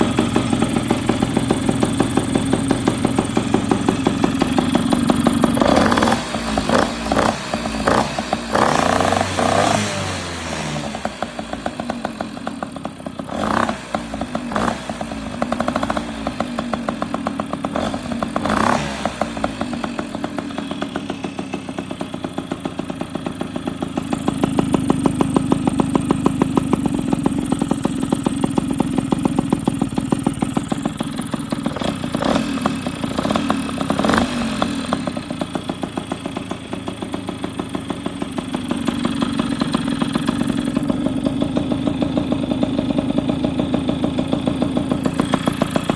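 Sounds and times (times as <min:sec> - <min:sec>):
moped two-stroke engine revving: 0:00.0 - 0:45.9.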